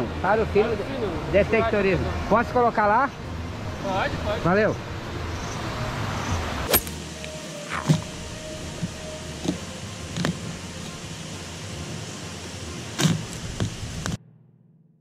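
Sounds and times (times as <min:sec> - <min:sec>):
river rushing: 0:01.2 - 0:14.2
spade scraping and thudding in soil: 0:06.7 - 0:07.0.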